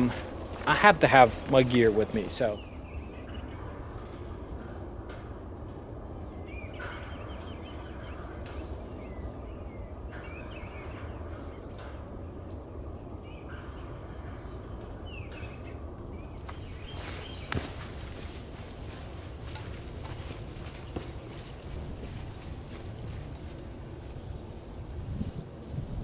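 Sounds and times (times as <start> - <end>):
bird chirps: 6.3 - 22.5
wind hiss: 15.9 - 26.0.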